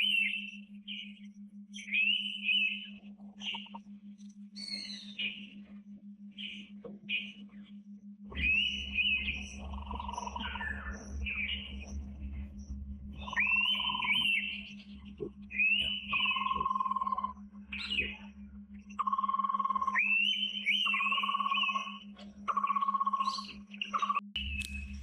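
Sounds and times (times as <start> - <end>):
bird whistled calls: 0.0 - 3.8, 8.3 - 11.8, 13.2 - 14.8, 15.5 - 18.3, 19.5 - 24.8
steady low hum: 0.0 - 25.0.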